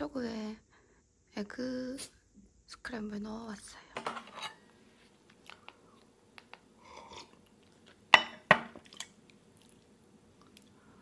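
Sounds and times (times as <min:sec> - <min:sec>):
chewing and crunching: 0:05.3 - 0:08.1, 0:08.7 - 0:11.0.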